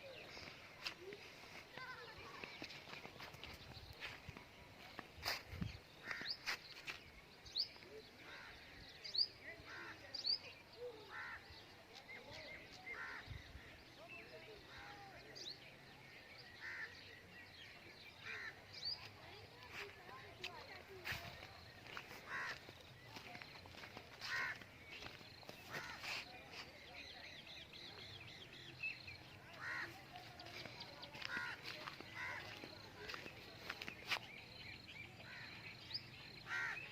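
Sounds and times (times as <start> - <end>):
birds chirping: 0.0 - 36.9
harsh caw-like bird calls: 6.0 - 6.5, 16.6 - 17.0, 22.2 - 22.7, 24.2 - 24.6, 29.5 - 30.0, 36.5 - 36.9.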